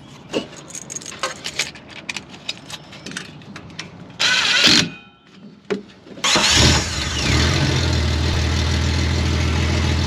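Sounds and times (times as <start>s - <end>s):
engine being cranked: 6.2s - 7.6s.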